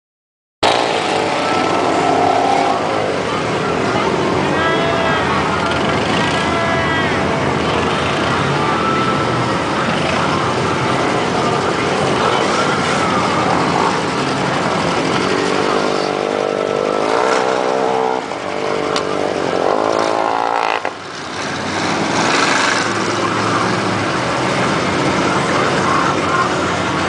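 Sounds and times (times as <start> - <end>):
loud steady rushing noise: 0.6 - 27.0
truck engine revving: 0.6 - 27.0.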